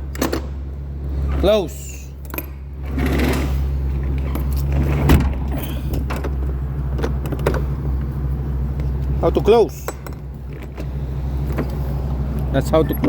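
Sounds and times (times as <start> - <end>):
truck engine idling: 0.0 - 13.0
truck door slamming: 4.7 - 7.7.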